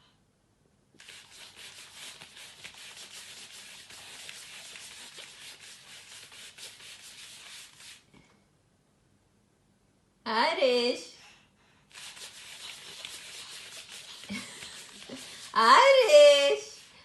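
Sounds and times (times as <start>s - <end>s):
hands scratching a play mat: 1.0s - 8.1s, 11.9s - 17.0s.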